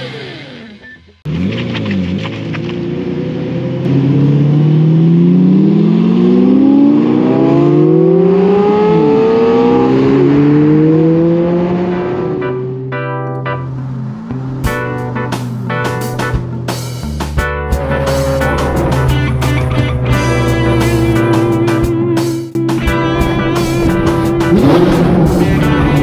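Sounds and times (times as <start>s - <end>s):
car engine accelerating hard: 0.0s - 12.9s, 13.5s - 17.0s, 17.6s - 26.0s.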